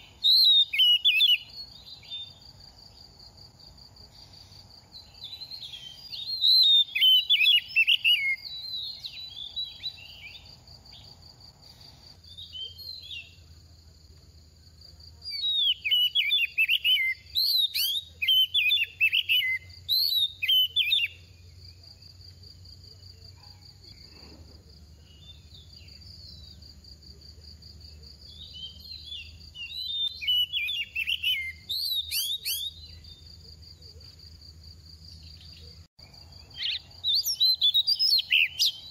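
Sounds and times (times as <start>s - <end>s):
bird singing whistled phrases: 0.0s - 2.4s, 5.0s - 10.4s, 12.3s - 13.4s, 15.3s - 21.3s, 28.3s - 33.2s, 36.5s - 38.9s.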